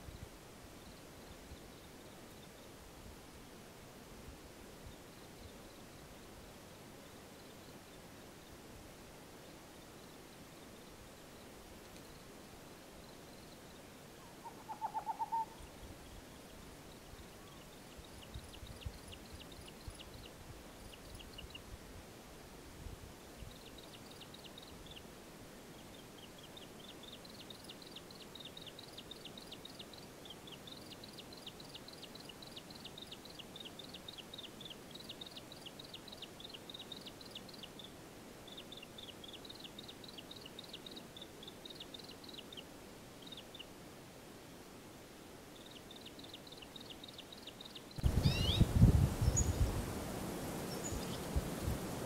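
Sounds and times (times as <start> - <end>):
rapid high-pitched bird chirping: 14.2 - 15.6, 45.6 - 48.7.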